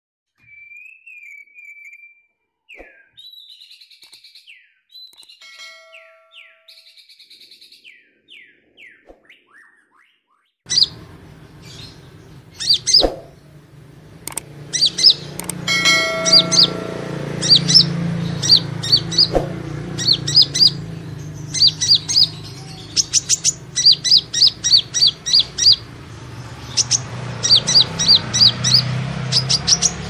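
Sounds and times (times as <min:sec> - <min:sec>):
sharp repeated high chirps: 0:10.7 - 0:11.0, 0:12.6 - 0:13.4, 0:14.2 - 0:25.9, 0:26.6 - 0:30.0
low hum: 0:10.7 - 0:26.7
hummingbird chirps and trills: 0:10.7 - 0:30.0
clicks: 0:14.2 - 0:14.5, 0:15.3 - 0:15.6.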